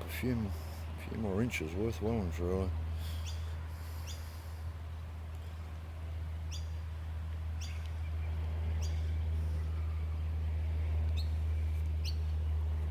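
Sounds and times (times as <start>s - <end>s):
steady low hum: 0.0s - 12.9s
bird chirping: 6.5s - 6.8s, 7.6s - 10.3s, 11.1s - 12.4s.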